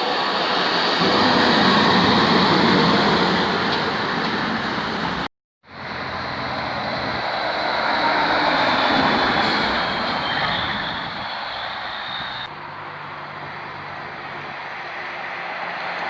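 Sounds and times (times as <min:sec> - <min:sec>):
heavy truck driving past: 0:04.6 - 0:16.0.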